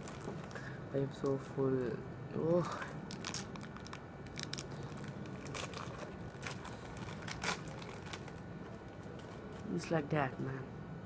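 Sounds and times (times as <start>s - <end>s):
biscuit packet crinkling: 0.0s - 0.6s, 3.0s - 9.6s.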